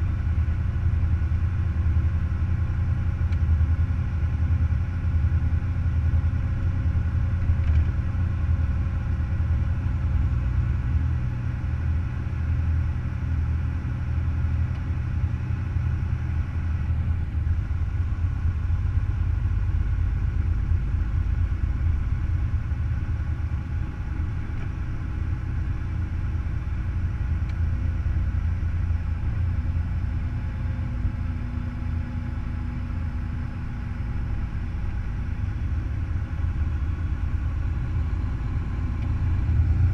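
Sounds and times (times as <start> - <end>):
truck diesel engine running: 15.0 - 39.9.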